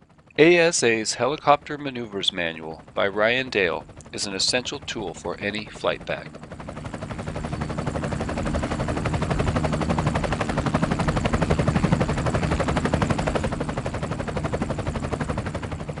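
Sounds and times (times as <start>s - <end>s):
helicopter rotor blades chopping: 0.0s - 16.0s.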